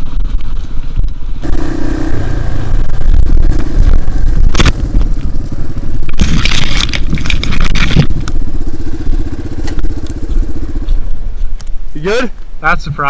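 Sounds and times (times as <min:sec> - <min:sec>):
dirt bike engine: 0:01.4 - 0:13.0
bike scraping and crashing: 0:06.1 - 0:08.2.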